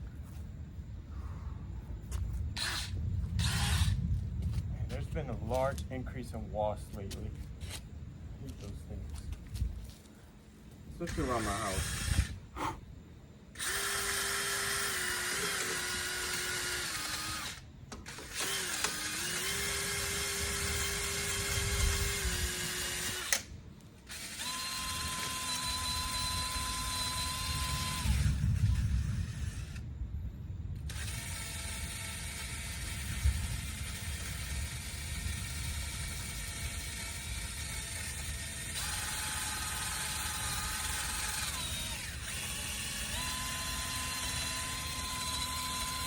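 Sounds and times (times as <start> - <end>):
electric drill whining: 2.6 - 4.0, 11.0 - 12.5, 13.5 - 29.8, 30.8 - 46.0.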